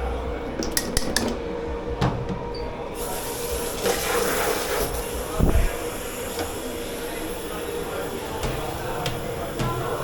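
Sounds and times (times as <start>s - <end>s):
water spraying with hiss: 3.0s - 10.0s.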